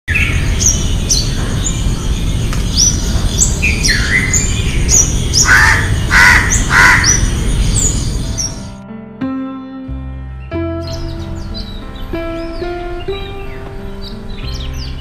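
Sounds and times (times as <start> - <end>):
high whistled bird calls: 0.1 - 8.6
louder lower bird calls: 0.1 - 8.7.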